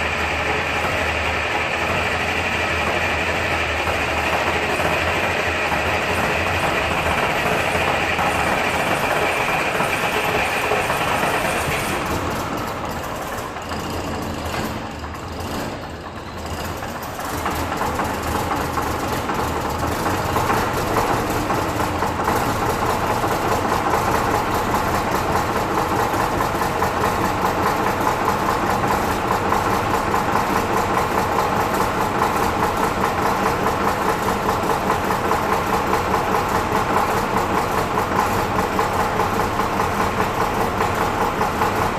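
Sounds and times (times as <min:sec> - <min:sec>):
diesel bus engine idling: 0:00.0 - 0:41.9.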